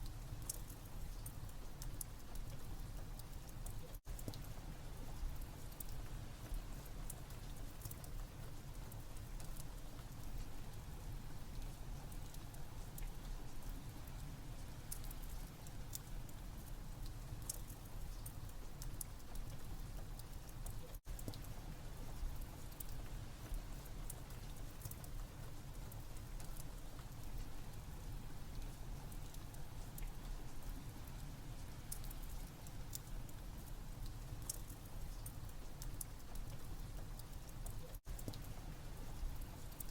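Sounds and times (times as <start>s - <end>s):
steady rain: 0.0s - 39.9s
wood fire crackling: 14.6s - 39.9s.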